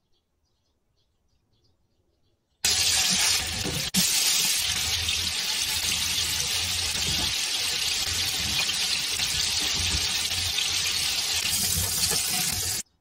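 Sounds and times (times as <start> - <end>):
oil sizzling: 2.6 - 12.8.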